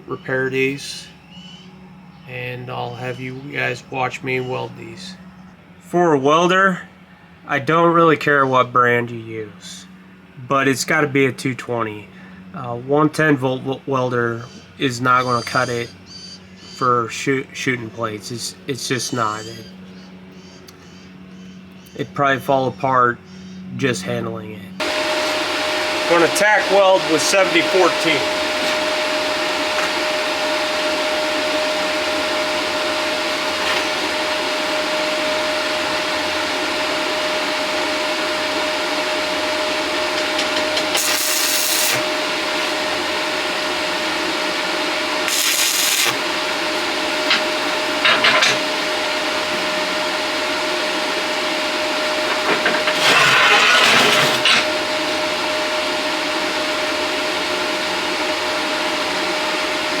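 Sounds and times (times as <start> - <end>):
welder hum and fan noise: 0.0 - 60.0
crackling welding arc: 40.1 - 42.7, 45.2 - 48.6.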